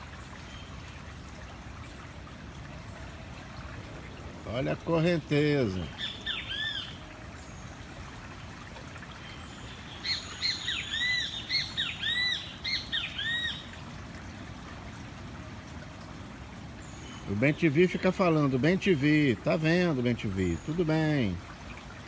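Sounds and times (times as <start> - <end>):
rushing water current: 0.0 - 22.0
bird calling: 4.6 - 7.8, 9.1 - 13.8.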